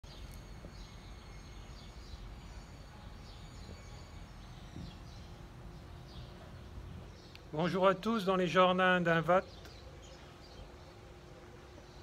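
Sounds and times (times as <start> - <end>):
bird chirping: 0.0 - 7.9.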